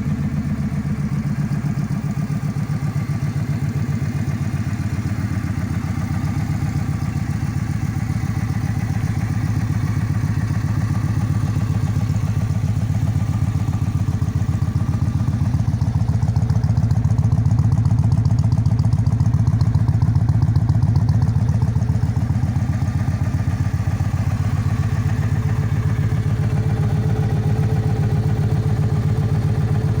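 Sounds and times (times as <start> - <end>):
motorcycle engine running steadily: 0.0 - 30.0.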